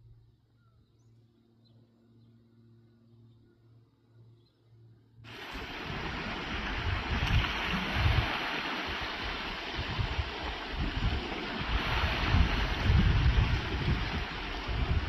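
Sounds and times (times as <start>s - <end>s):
water rushing: 5.3s - 15.0s
wind gusting on microphone: 5.3s - 15.0s.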